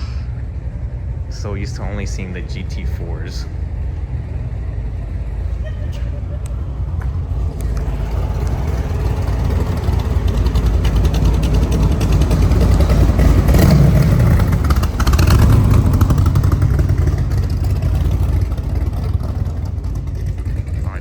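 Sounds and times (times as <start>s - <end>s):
car engine revving past: 6.4s - 20.8s.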